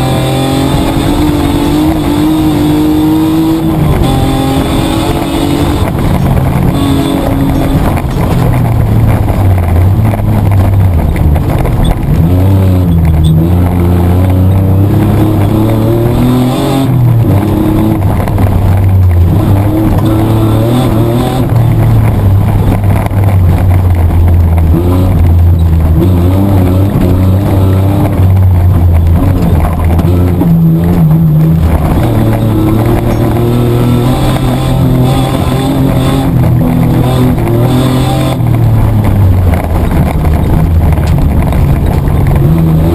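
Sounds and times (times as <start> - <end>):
car engine revving hard: 0.0 - 42.9.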